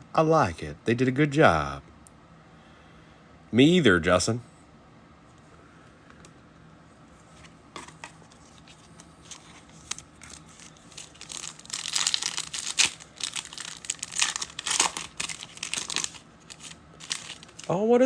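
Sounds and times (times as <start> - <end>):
wrapper crinkling and ripping: 7.8 - 17.7.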